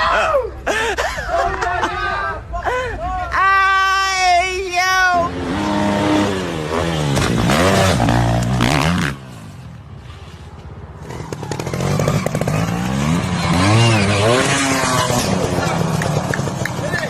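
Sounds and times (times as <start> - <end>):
dirt bike engine revving: 5.2 - 9.6, 11.0 - 17.0.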